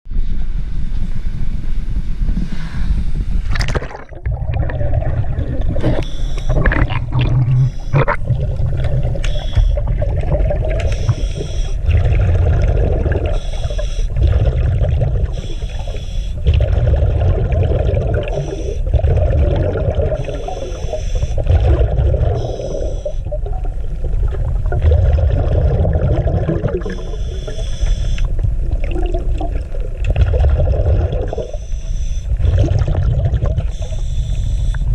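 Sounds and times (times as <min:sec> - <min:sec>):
boat engine rumbling: 0:00.1 - 0:15.8.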